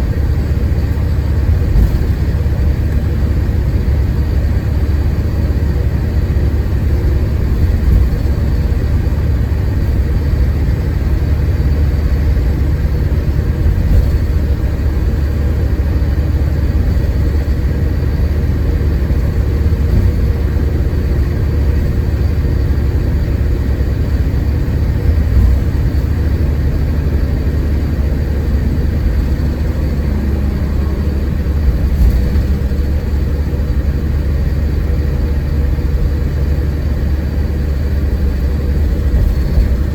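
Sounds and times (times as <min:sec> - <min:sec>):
coach diesel engine rumble: 0:00.0 - 0:39.9
light body knocks: 0:01.5 - 0:02.4, 0:07.4 - 0:09.0, 0:13.5 - 0:15.0, 0:19.0 - 0:21.1, 0:25.0 - 0:34.0.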